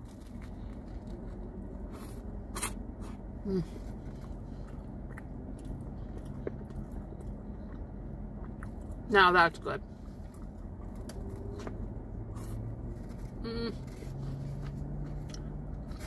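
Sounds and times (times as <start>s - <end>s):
car air conditioning hum: 0.1s - 16.0s
wet chewing clicks: 4.7s - 9.0s.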